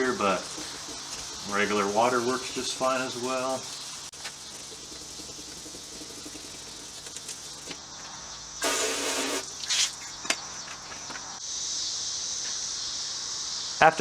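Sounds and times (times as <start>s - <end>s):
sandpaper scrubbing plastic: 0.0s - 7.8s
steady high hiss: 0.0s - 14.0s.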